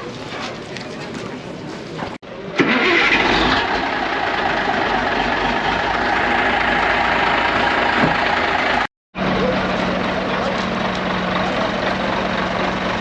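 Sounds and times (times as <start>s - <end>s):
diesel lorry engine idling: 2.6s - 13.0s.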